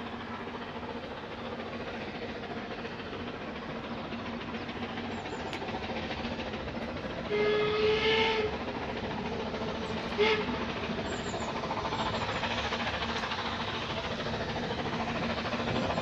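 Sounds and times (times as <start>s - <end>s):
steam locomotive running: 0.0s - 16.0s
steam whistle blast: 7.3s - 8.5s, 10.2s - 10.6s.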